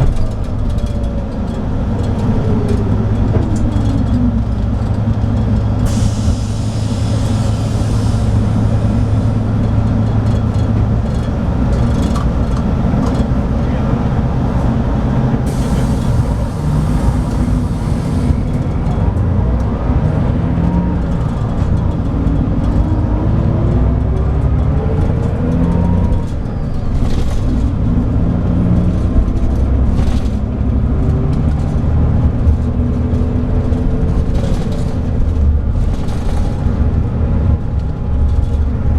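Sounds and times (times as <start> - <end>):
diesel coach engine running: 0.0 - 38.9.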